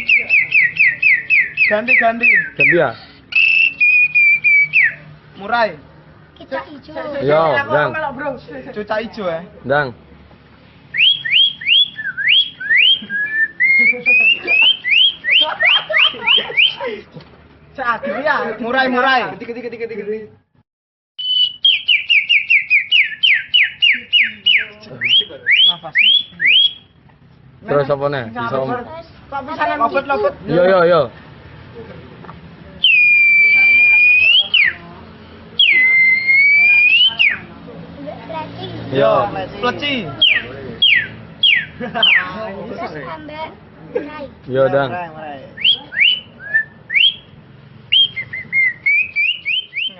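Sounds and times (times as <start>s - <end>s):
person whistling birdsong: 0.0s - 5.0s, 21.2s - 26.8s, 47.9s - 49.9s.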